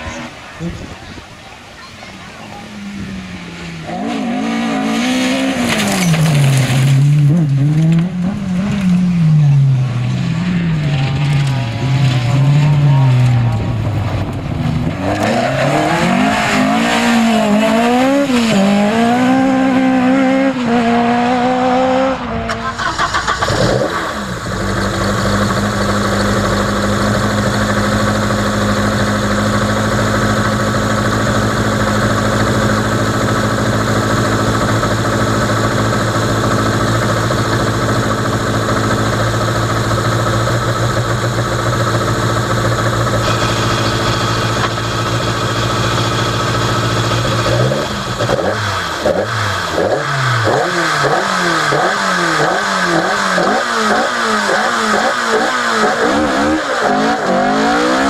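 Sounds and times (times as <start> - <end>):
engine revving in throttle blips: 14.8 - 58.0
rally car engine idling: 22.7 - 56.9.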